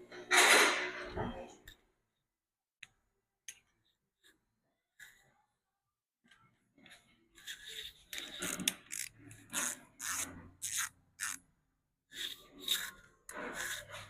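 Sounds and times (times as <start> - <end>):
ratchet wrench clicking: 8.8 - 11.4.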